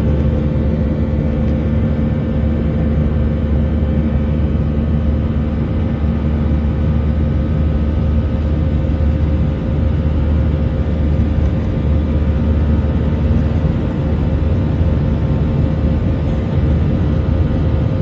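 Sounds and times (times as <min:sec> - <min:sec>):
jet engine and airflow rumble: 0:00.0 - 0:18.0.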